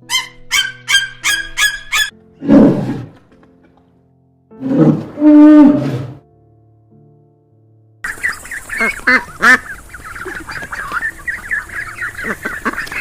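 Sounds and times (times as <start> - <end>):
background music: 0.0 - 13.0
animal calls: 0.1 - 2.1.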